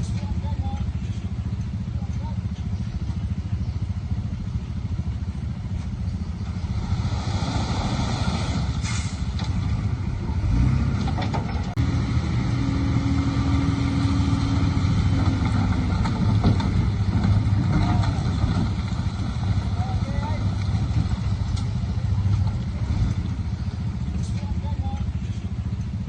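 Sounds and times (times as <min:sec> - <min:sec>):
diesel engine rumbling: 0:00.0 - 0:26.0.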